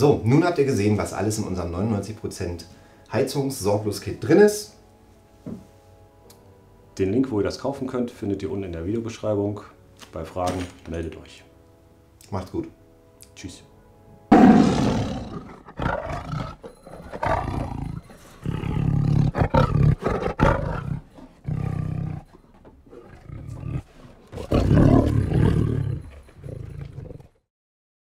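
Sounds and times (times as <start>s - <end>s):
tiger roaring and growling: 14.3s - 27.4s.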